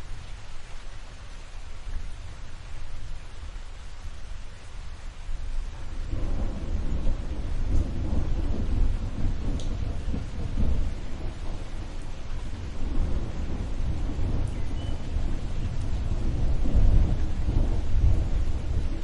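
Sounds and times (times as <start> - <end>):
steady rain: 0.0 - 19.0
thunder rumbling: 5.6 - 19.0.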